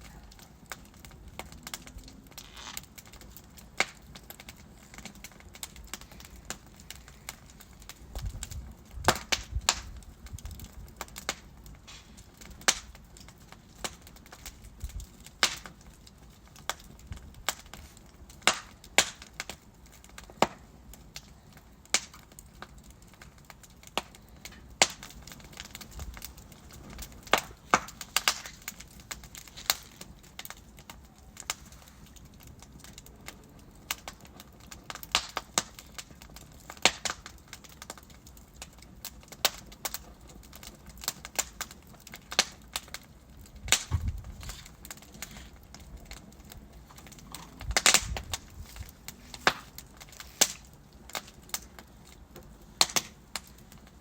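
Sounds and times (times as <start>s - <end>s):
wood fire crackling: 0.0s - 54.0s
soft steady hiss: 39.8s - 54.0s.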